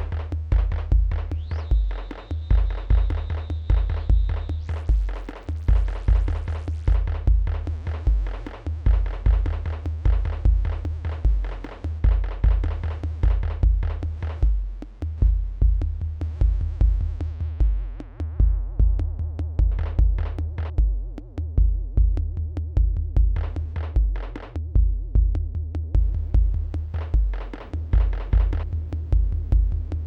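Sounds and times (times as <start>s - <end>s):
noisy snare-like hits: 0.0s - 7.2s
steady kick drum: 0.0s - 30.0s
ticking hi-hats: 0.0s - 30.0s.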